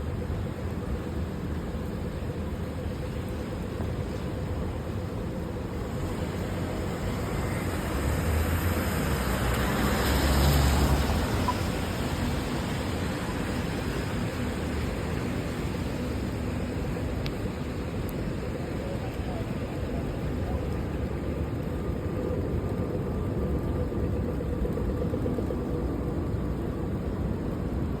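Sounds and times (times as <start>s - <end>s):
city traffic: 0.0s - 28.0s
rain: 0.0s - 28.0s
tyres hissing on wet road: 5.8s - 22.9s.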